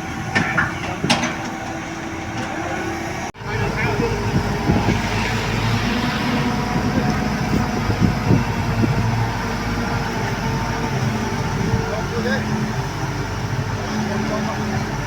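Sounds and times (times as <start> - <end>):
heavy truck engine running: 0.0 - 15.0
knocks and clanks: 0.3 - 1.8.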